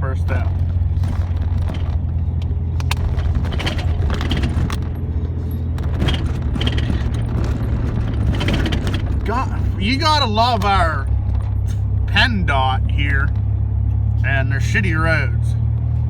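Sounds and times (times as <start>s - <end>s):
engine and road rumble: 0.0s - 16.0s
cab clicks and rattles: 0.3s - 12.0s.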